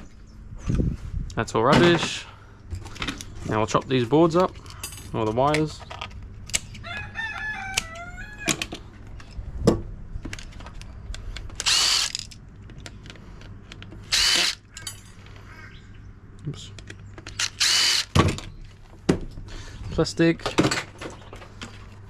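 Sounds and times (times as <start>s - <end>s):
rooster crowing: 6.8s - 8.8s
power drill whirring: 11.6s - 12.2s, 14.1s - 14.6s, 17.4s - 18.2s.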